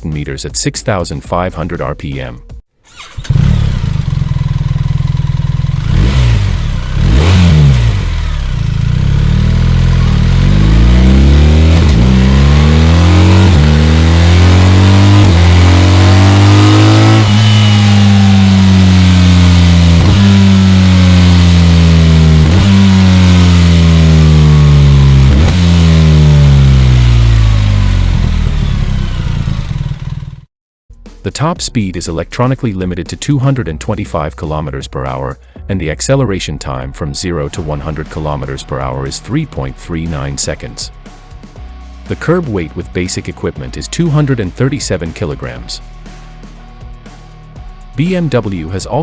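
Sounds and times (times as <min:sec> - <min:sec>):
motorcycle engine revving: 0:02.8 - 0:30.5, 0:37.5 - 0:42.6.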